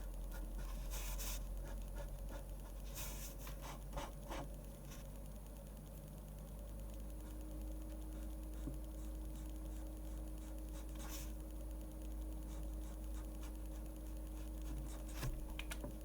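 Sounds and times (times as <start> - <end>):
low steady hum: 0.0 - 16.0
pen scratching on paper: 0.3 - 5.1, 8.1 - 11.4, 12.4 - 15.3.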